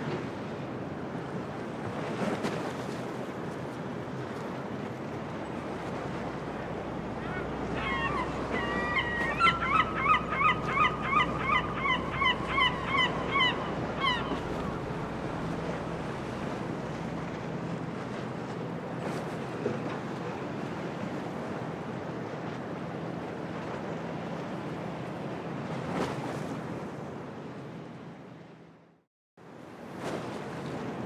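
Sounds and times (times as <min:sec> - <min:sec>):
surf: 0:00.0 - 0:27.4
wind: 0:00.0 - 0:31.0
gull calling: 0:06.2 - 0:16.7.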